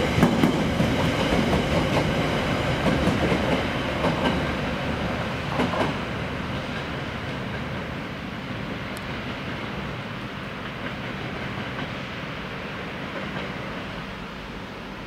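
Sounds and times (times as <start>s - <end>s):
train wheels knocking on rail joints: 0.0s - 8.0s, 10.6s - 12.0s.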